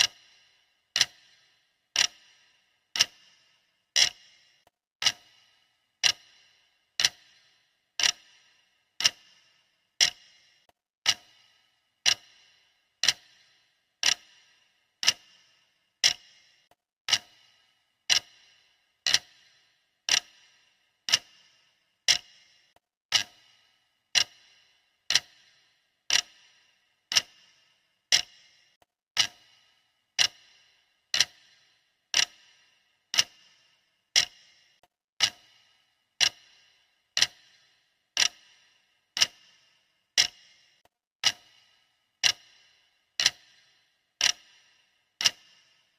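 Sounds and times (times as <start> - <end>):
clock ticking: 0.0 - 45.9.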